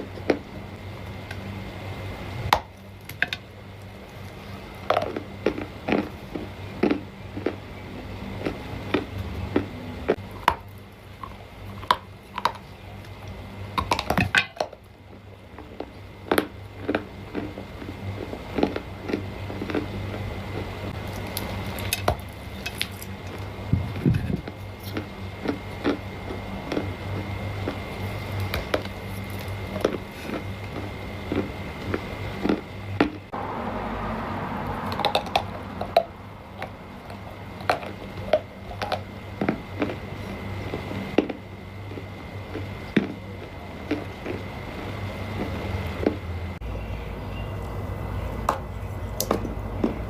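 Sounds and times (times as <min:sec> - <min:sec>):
dry clay crunching and cracking: 0:08.4 - 0:33.2.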